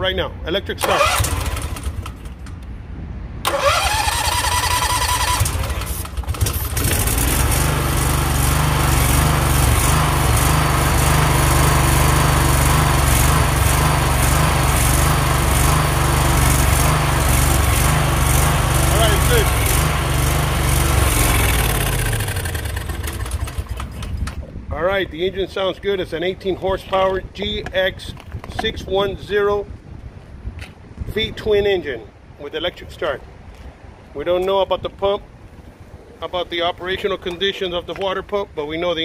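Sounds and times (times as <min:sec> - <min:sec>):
engine cranking and starting: 0:00.8 - 0:02.6, 0:03.4 - 0:24.4
engine running steadily: 0:00.8 - 0:02.7, 0:03.4 - 0:24.5.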